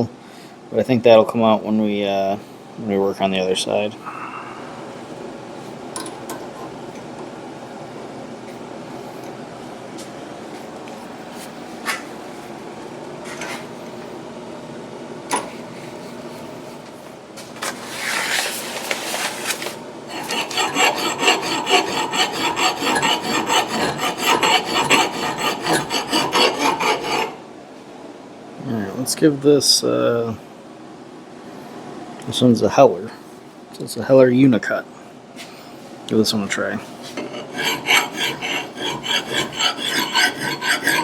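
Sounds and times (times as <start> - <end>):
file rasping on axe head: 20.1 - 27.4, 37.2 - 41.0.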